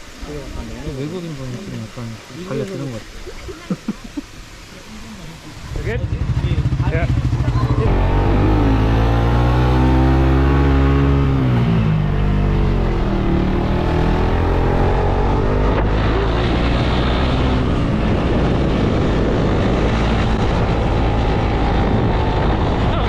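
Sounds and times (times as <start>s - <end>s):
wind rushing over microphone: 5.5s - 23.0s.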